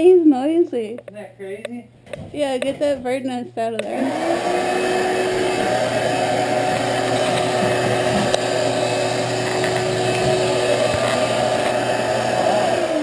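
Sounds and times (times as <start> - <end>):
shop vac running: 1.2 - 13.0.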